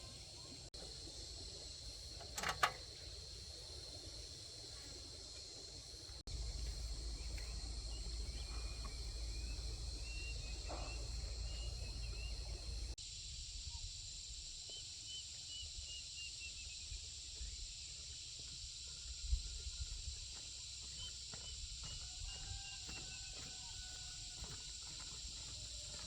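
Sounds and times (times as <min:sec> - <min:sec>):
insect drone: 0:00.0 - 0:26.0
bird chirps: 0:06.3 - 0:13.0
low rumble: 0:06.3 - 0:13.0.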